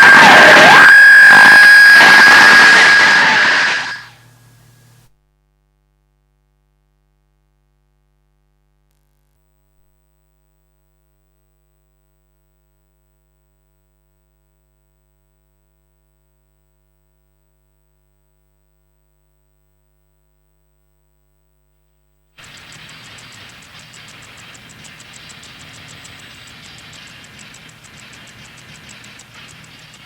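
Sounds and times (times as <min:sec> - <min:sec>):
thin high whine: 0:00.0 - 0:04.2, 0:22.4 - 0:30.0.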